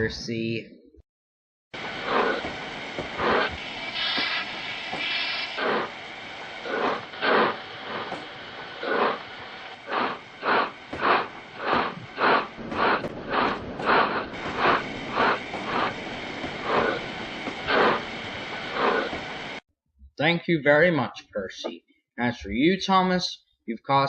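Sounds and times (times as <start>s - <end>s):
steam locomotive chuffing: 1.8s - 19.6s
steam locomotive hissing: 1.8s - 19.6s.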